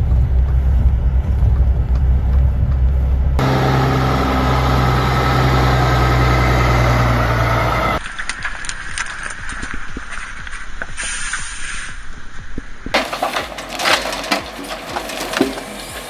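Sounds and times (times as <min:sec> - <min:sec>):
heavy engine running: 0:00.0 - 0:08.0, 0:13.0 - 0:16.0
machine hum: 0:00.0 - 0:08.0
clicking and clattering: 0:13.0 - 0:16.0.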